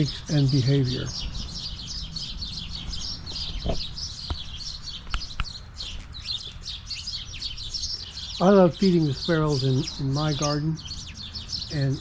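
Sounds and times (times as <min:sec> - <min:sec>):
sparrows chirping: 0:00.0 - 0:12.0
sharp clicks: 0:03.6 - 0:06.1.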